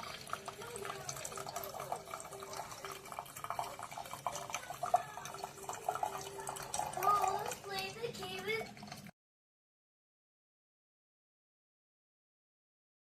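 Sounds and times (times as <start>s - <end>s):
coffee maker gurgling: 0.0s - 9.1s
pops and drips: 0.0s - 9.1s.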